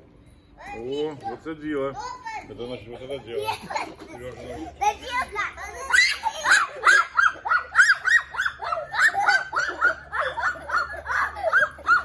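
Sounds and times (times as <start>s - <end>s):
dog yapping: 5.9s - 12.0s.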